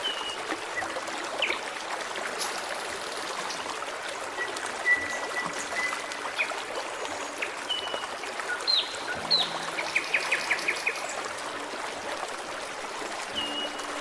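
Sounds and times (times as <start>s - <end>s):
forest stream flowing: 0.0s - 14.0s
songbirds calling: 4.4s - 11.4s.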